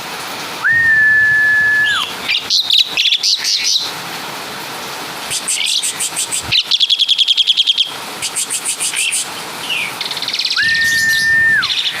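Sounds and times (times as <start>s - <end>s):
starling singing: 5.3s - 12.0s.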